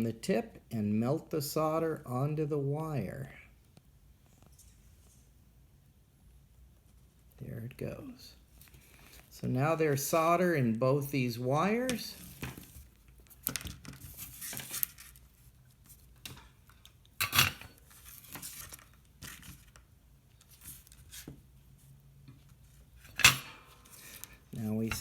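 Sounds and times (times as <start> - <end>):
wires and tools handled on workbench: 8.5 - 10.4, 11.6 - 25.0.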